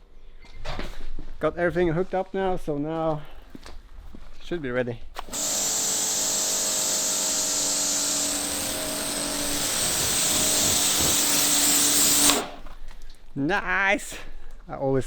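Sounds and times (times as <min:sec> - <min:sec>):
pressure washer motor hum: 0:05.2 - 0:12.7
water jet hissing: 0:05.2 - 0:12.7.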